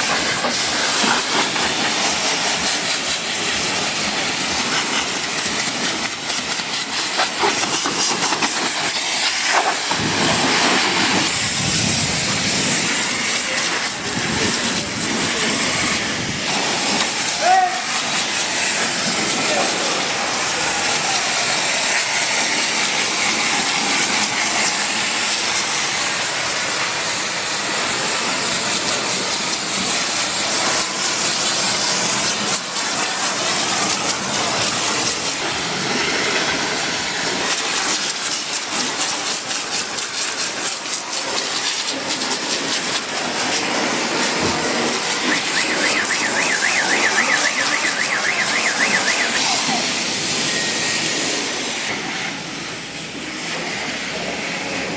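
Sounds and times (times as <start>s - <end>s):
pressure washer spraying water: 0.0s - 54.9s
warbling high tone: 45.1s - 51.1s.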